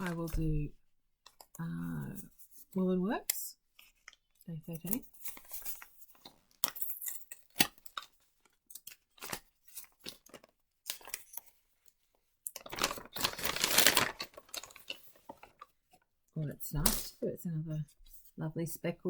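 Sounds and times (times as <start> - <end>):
parcel wrapping crinkling: 0.0 - 0.4, 3.7 - 16.1
wrapping tearing: 8.8 - 11.4, 12.6 - 15.7.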